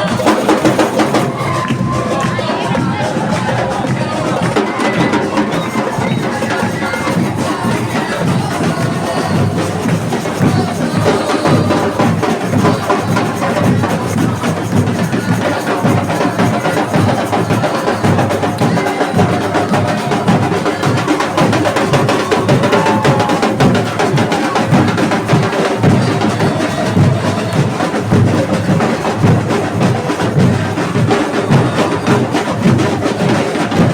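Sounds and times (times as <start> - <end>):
clacking hand percussion: 0.0 - 33.9
snare drums: 0.0 - 33.9.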